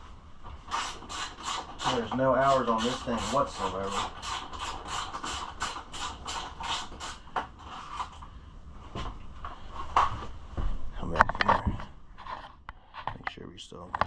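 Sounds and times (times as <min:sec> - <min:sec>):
ratchet strokes: 0:00.7 - 0:08.1.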